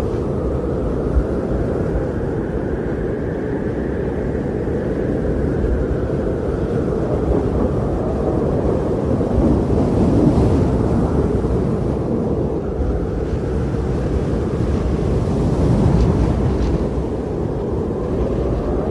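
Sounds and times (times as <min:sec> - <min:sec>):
strong blizzard wind: 0:00.0 - 0:18.9.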